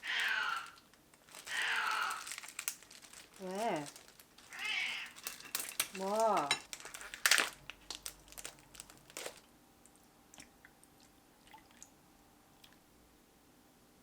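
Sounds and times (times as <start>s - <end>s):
crunching and chewing: 0.2s - 9.5s.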